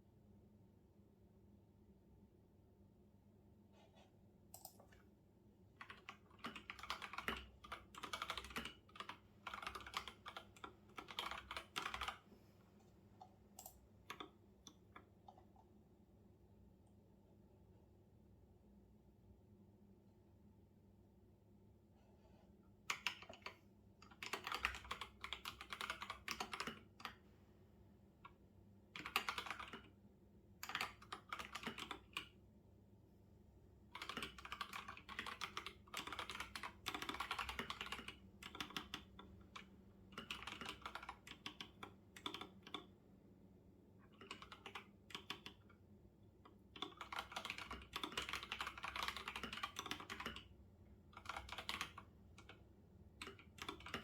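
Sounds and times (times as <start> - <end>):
typing on computer keyboard: 4.5 - 5.0, 5.8 - 12.2, 13.2 - 15.5, 22.9 - 27.2, 28.2 - 30.0, 30.6 - 32.4, 33.9 - 43.0, 44.1 - 45.8, 46.4 - 54.0.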